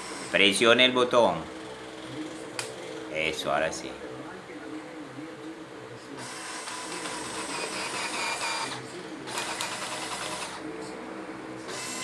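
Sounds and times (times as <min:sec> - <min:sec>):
electric drill motor running: 0:00.0 - 0:00.8, 0:06.2 - 0:10.7, 0:11.6 - 0:12.0.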